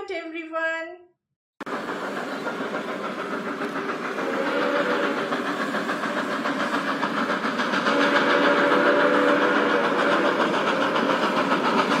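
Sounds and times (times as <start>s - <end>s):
train chugging: 1.6s - 12.0s
multi-tone train whistle: 4.1s - 5.5s, 7.7s - 11.7s.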